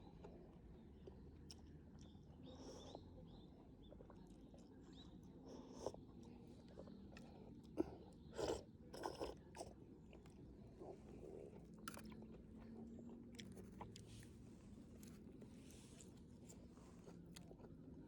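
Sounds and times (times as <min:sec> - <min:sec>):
person chewing: 0:11.5 - 0:12.4, 0:13.3 - 0:14.4.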